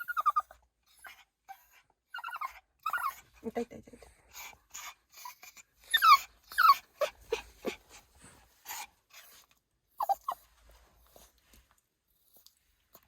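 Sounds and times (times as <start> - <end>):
dog whining and yipping: 0.0 - 3.3, 4.8 - 8.0, 10.0 - 10.6.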